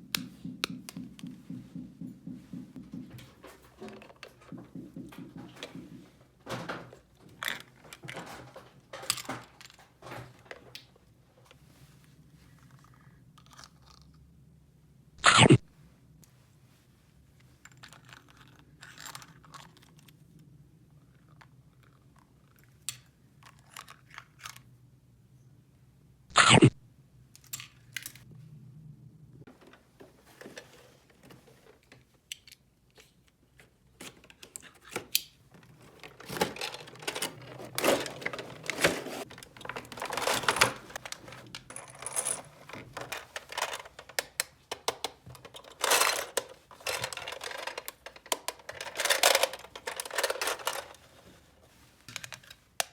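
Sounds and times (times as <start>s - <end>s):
plastic toy pieces clicking: 39.4s - 50.9s.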